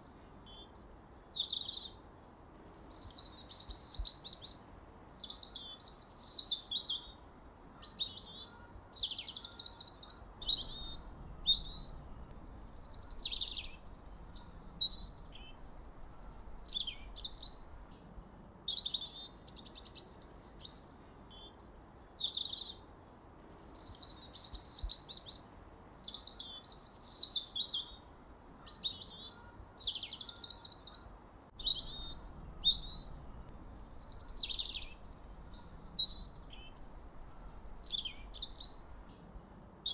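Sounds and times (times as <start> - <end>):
birds chirping and whistling: 10.4 - 17.9, 31.6 - 39.0.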